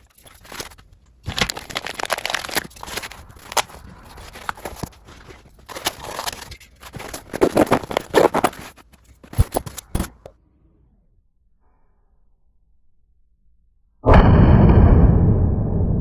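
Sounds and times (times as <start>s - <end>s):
packaging rustling: 0.0s - 10.3s
plastic and metal parts clicking: 0.0s - 10.3s.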